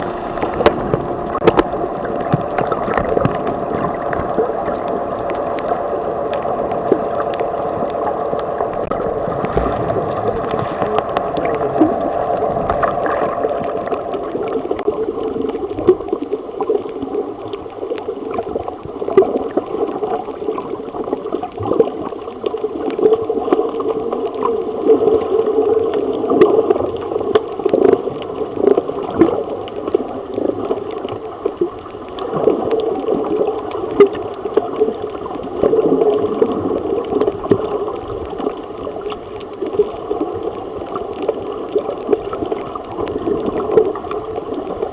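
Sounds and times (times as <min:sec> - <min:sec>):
muffled underwater hum: 0:00.0 - 0:44.9
water gurgling: 0:00.0 - 0:44.9
crackling clicks: 0:00.1 - 0:16.8.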